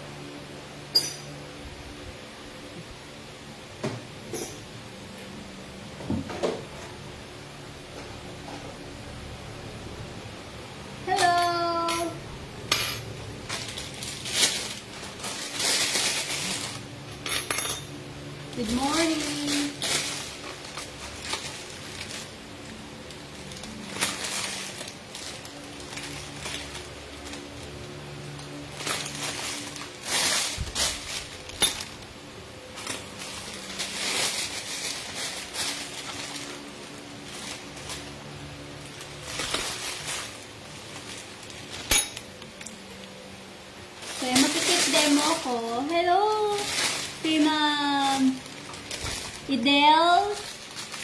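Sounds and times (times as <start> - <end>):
kitchen utensils rustling and clinking: 0.9 - 1.4, 4.2 - 4.8, 11.1 - 32.1, 32.7 - 43.2, 44.0 - 51.0
utensils and dishes clinking: 0.9 - 1.4, 4.2 - 4.7, 11.2 - 18.0, 28.5 - 32.0, 41.0 - 42.8.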